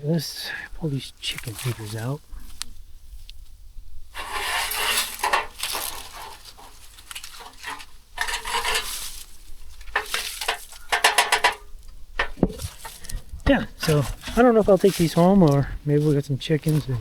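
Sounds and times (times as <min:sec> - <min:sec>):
chick feeders clattering and scraping: 0:04.2 - 0:17.0.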